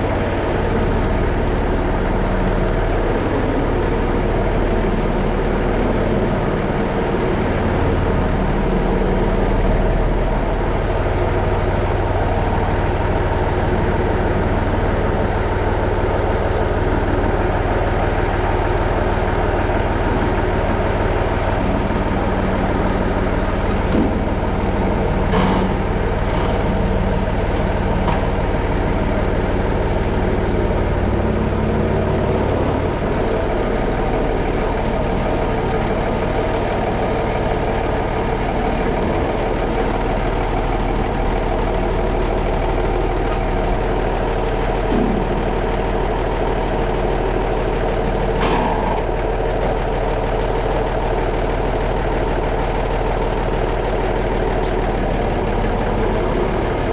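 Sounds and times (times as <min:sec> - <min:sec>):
tractor engine running: 0:00.0 - 0:56.9
short clunks: 0:25.2 - 0:26.8.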